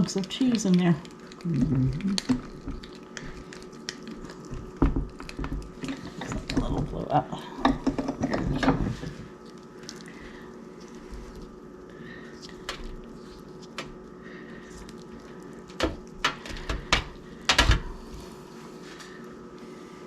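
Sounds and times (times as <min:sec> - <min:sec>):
faint steady hum: 0:00.0 - 0:20.0
kitchen items clicking and knocking: 0:04.8 - 0:09.1.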